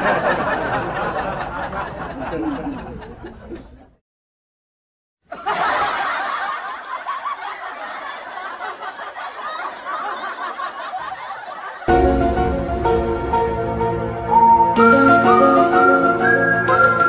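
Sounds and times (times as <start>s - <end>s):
people laughing: 0.0s - 4.0s, 5.3s - 11.9s.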